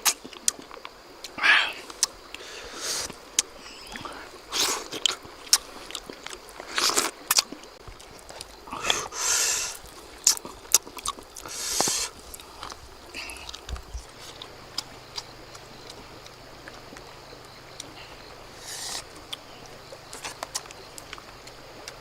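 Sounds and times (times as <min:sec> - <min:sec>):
person chewing with mouth clicks: 0:00.0 - 0:02.2, 0:03.0 - 0:17.1.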